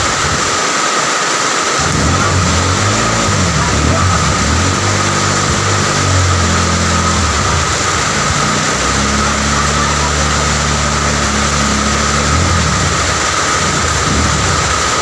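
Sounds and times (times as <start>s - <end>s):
steady rain hiss: 0.0s - 15.0s
vehicle engine hum: 1.8s - 15.0s.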